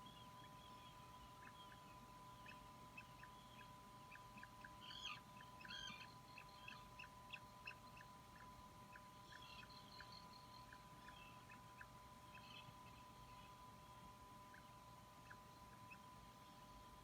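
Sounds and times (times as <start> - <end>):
chick peeping: 1.4 - 13.0.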